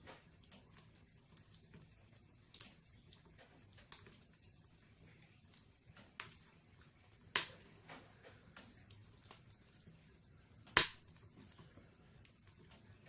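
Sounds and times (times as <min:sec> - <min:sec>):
loud pops from burning logs: 0:00.0 - 0:13.0
wood fire crackling in fireplace: 0:00.0 - 0:13.0.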